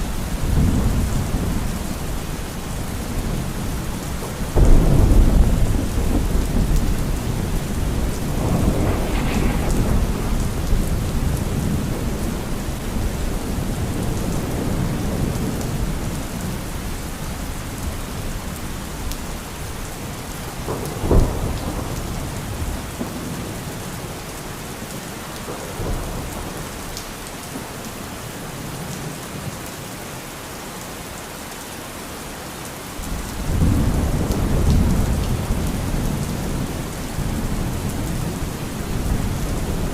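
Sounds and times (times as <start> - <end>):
thunder rumbling: 0.0 - 17.0, 20.4 - 24.2, 33.0 - 39.9
steady rain: 0.0 - 39.9
sharp thunderclap: 4.5 - 15.9, 20.6 - 23.5, 33.1 - 36.6.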